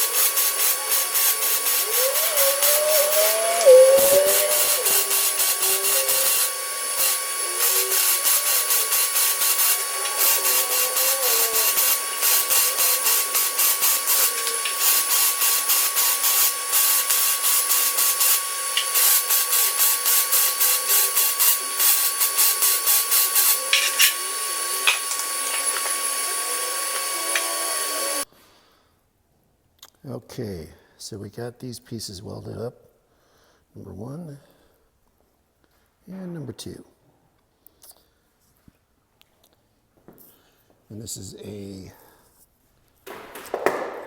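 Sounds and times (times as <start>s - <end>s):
welding arc crackling: 0.0s - 28.3s, 43.1s - 44.0s.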